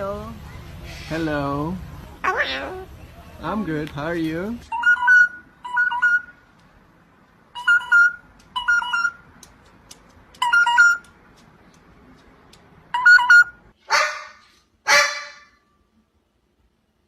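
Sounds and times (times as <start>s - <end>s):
parrot squawks: 2.2s - 3.0s, 13.0s - 15.6s
parrot mimicking phone ringtone: 4.7s - 6.4s, 7.5s - 9.3s, 10.4s - 11.0s, 12.9s - 13.6s.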